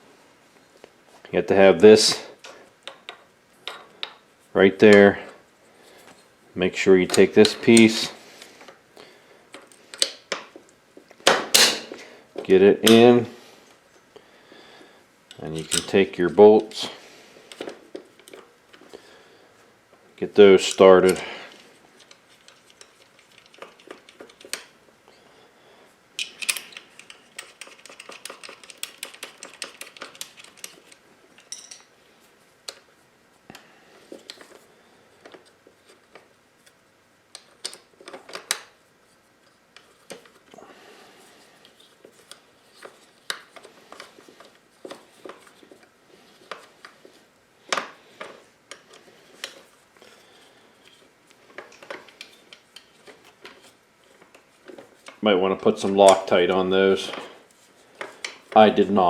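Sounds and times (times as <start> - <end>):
tools clinking on metal: 15.3 - 16.0, 31.4 - 31.9.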